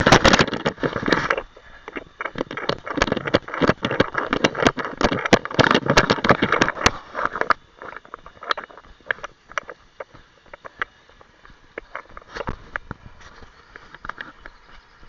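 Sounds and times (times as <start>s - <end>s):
camera knocks and rustling: 0.0s - 10.8s.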